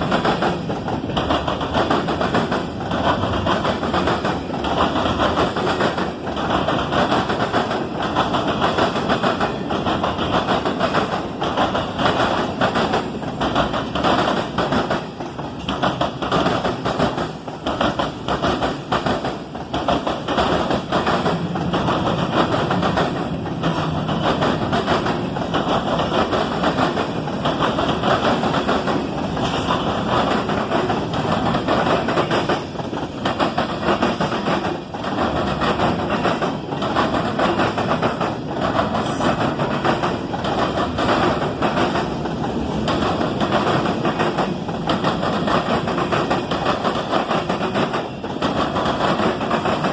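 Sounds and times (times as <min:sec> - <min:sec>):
train wheels rumbling on rail: 0:00.0 - 0:49.9
wheels clicking over rail joints: 0:00.0 - 0:49.9.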